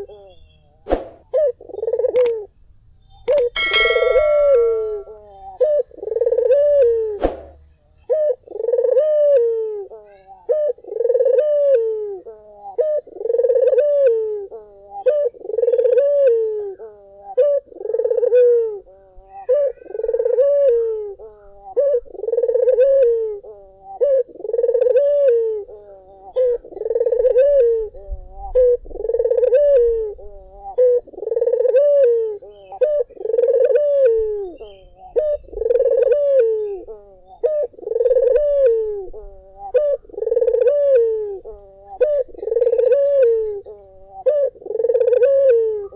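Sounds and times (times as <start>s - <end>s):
dove cooing: 0.0s - 0.5s, 1.2s - 2.5s, 3.3s - 7.3s, 8.0s - 45.9s.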